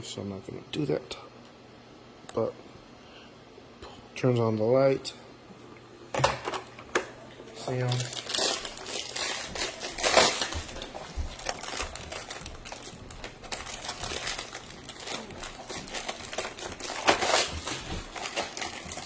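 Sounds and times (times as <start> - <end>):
rustling: 7.9 - 19.0.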